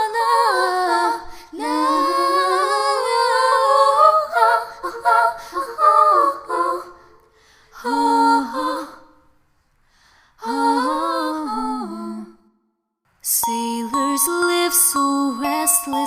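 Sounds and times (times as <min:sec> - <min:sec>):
woman singing unaccompanied: 0:13.3 - 0:16.0.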